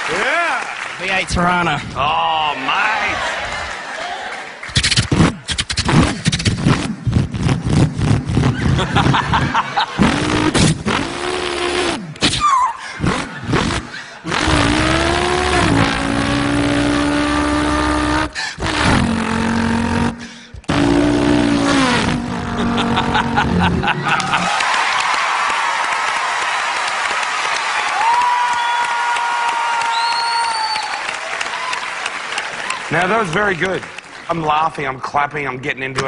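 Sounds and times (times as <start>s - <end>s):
man imitating car engine: 10.0s - 24.5s.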